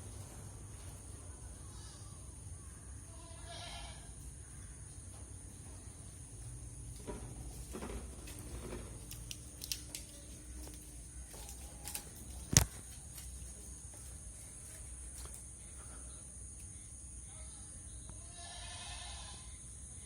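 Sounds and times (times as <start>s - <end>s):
goat bleating: 3.1s - 4.2s, 18.3s - 19.5s.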